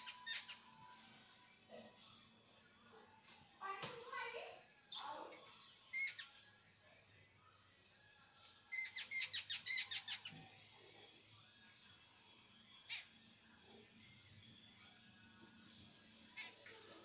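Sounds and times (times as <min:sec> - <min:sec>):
bird calling and chattering: 0:00.0 - 0:00.6, 0:08.8 - 0:10.4, 0:16.3 - 0:16.8.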